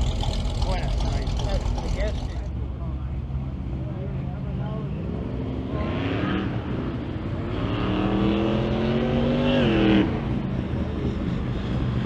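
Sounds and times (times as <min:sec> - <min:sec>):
car engine revving: 0:00.0 - 0:02.5.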